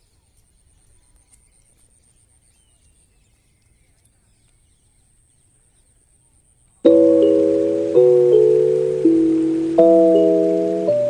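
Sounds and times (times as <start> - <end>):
faint high chirps and ticks: 0.0 - 11.0.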